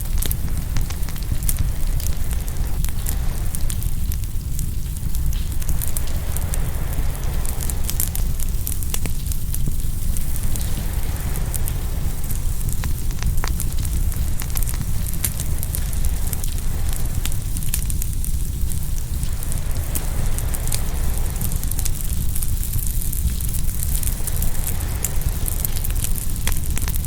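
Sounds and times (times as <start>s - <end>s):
low rumble: 0.0s - 27.0s
wood fire crackling and popping: 0.0s - 27.0s
ocean waves: 5.4s - 9.0s, 10.1s - 17.7s, 18.7s - 27.0s.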